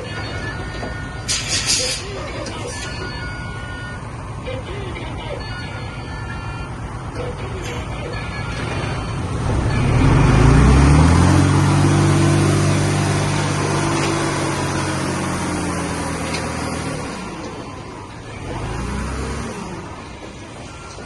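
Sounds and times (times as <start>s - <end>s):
heavy earthmoving vehicle engine revving: 7.0s - 21.0s.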